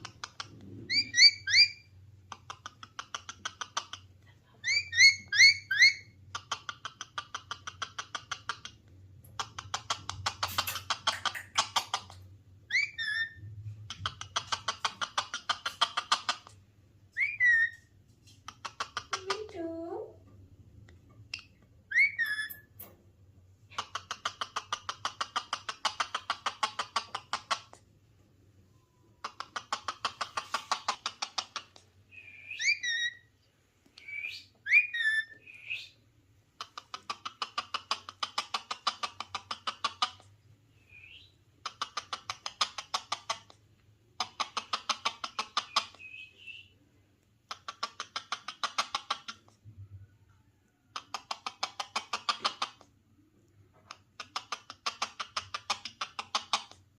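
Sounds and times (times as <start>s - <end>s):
parakeet chattering: 0.0s - 19.5s, 21.2s - 22.7s, 23.7s - 27.8s, 29.2s - 33.3s, 34.0s - 40.3s, 41.0s - 43.5s, 44.2s - 46.4s, 47.5s - 49.5s, 50.9s - 52.8s, 54.2s - 56.8s.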